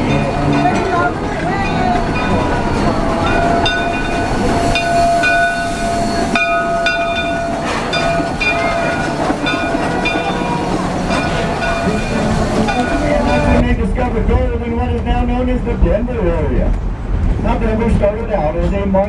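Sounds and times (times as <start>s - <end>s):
high wheel squeals: 0.0s - 13.7s
train rolling rumble: 0.0s - 19.0s
held tone: 1.8s - 13.6s.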